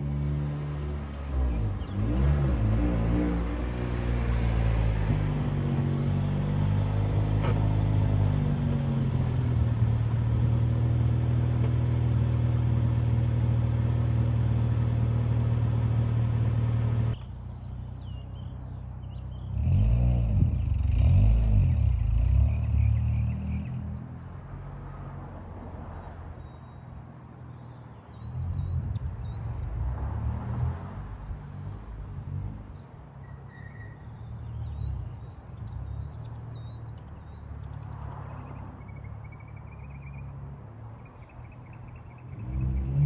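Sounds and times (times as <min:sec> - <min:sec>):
car engine revving: 0:00.0 - 0:17.2.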